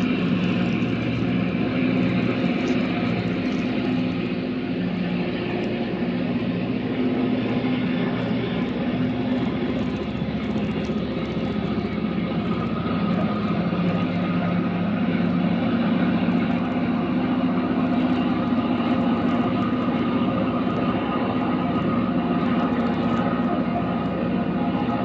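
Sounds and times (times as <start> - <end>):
rail grinder train engines droning: 0.0 - 25.0.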